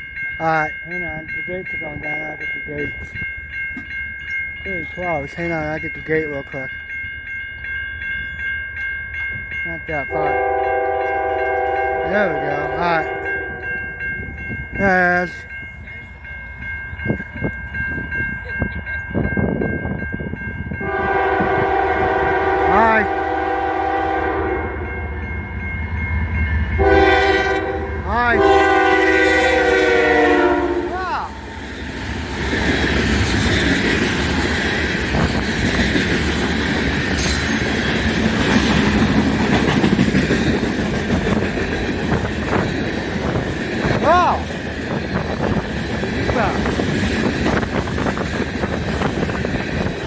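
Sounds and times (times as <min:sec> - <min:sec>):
railroad crossing bell ringing: 0:00.0 - 0:50.0
locomotive horn: 0:10.1 - 0:13.7, 0:20.8 - 0:24.9, 0:26.8 - 0:31.2.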